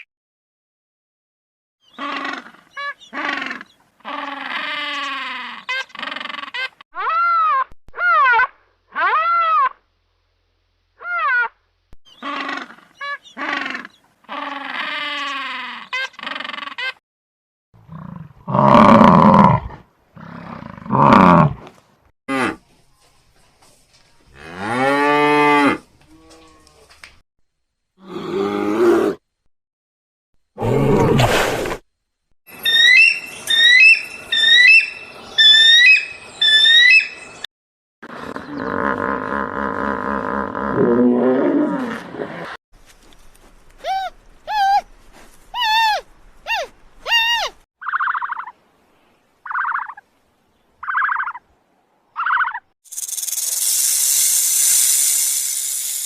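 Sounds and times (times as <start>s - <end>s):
animal calls: 12.1s - 16.9s.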